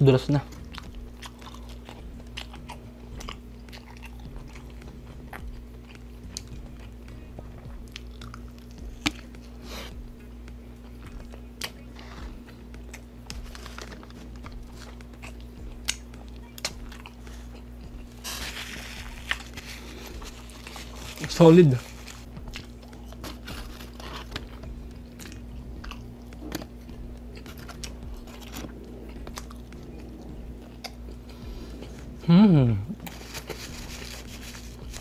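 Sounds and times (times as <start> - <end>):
steady low hum: 0.0 - 35.0
paper wrapper rustling: 13.4 - 14.9, 18.2 - 22.3, 23.2 - 24.5, 33.0 - 35.0.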